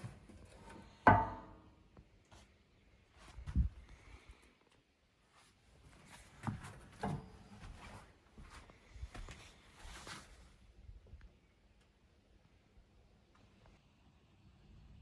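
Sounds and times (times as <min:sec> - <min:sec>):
tools and parts knocking: 0:00.5 - 0:01.6.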